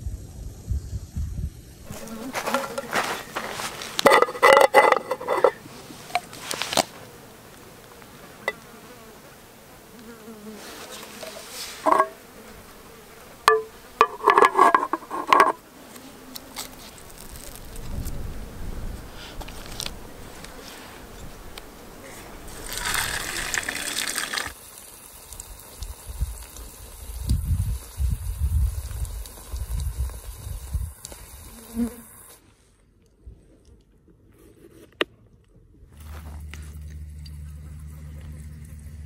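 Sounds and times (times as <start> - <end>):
insect buzzing: 1.8 - 5.6, 6.2 - 32.4.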